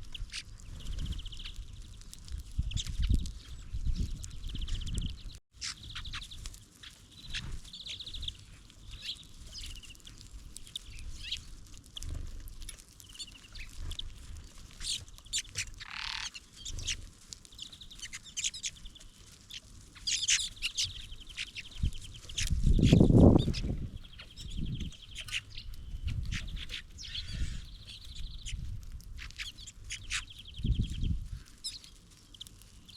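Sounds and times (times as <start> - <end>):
small songbirds chirping: 0.0 - 32.9
bird buzzy trills: 14.8 - 17.0.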